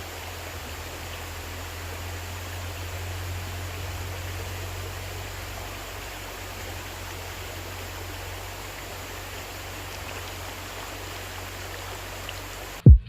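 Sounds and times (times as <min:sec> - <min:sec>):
creek water running: 0:00.0 - 0:12.9
tractor engine hum: 0:00.0 - 0:13.0.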